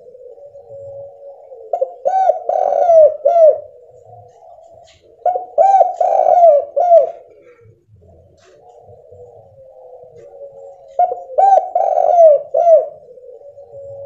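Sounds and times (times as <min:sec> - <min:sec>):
dove cooing: 0:00.0 - 0:14.0.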